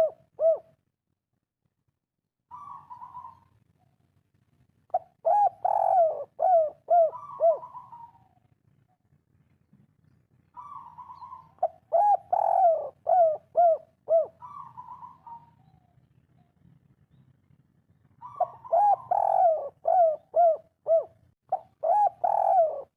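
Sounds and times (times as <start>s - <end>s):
dove cooing: 0.0s - 0.8s, 2.5s - 3.5s, 4.9s - 8.5s, 10.5s - 16.5s, 18.2s - 22.9s.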